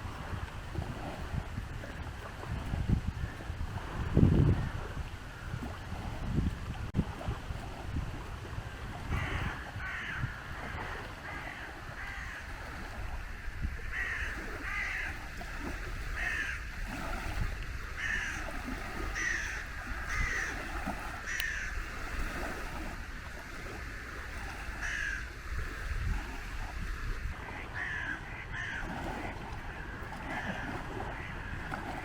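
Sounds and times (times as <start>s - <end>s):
crows cawing: 9.1s - 12.5s, 13.9s - 15.2s, 16.2s - 16.7s, 18.0s - 21.8s, 24.8s - 25.3s, 27.5s - 29.0s, 29.7s - 31.6s.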